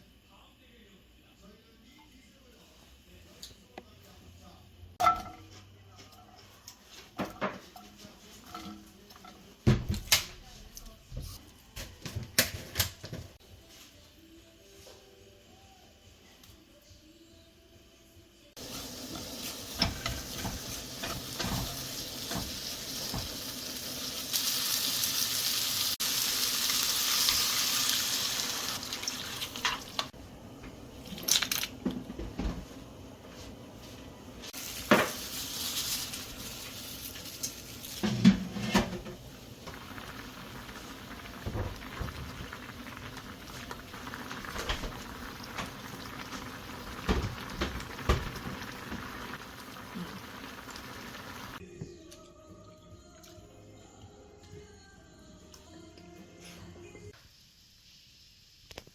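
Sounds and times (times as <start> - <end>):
dishes clinking: 5.0 - 5.7
water running: 18.6 - 30.2, 34.6 - 51.6.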